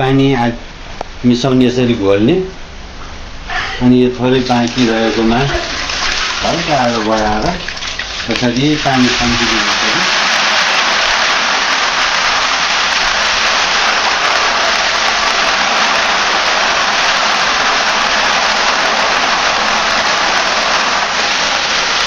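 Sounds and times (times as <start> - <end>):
potatoes sizzling in hot oil: 4.7 - 22.0.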